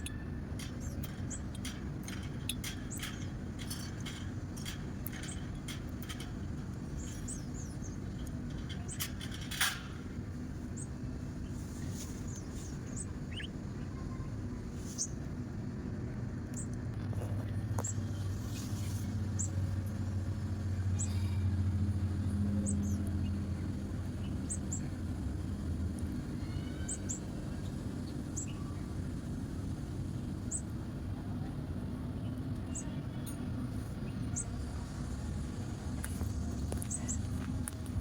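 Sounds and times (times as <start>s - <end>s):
small bird chirping: 0.0s - 15.3s, 26.4s - 28.9s, 36.8s - 37.3s
low traffic rumble: 0.0s - 38.0s.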